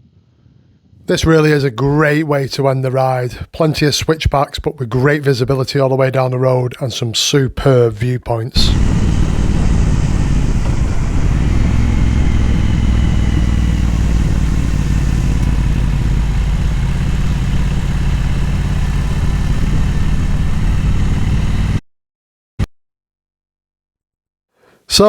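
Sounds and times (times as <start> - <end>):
motorcycle engine running: 8.6 - 21.8
wind and road noise: 8.6 - 21.8.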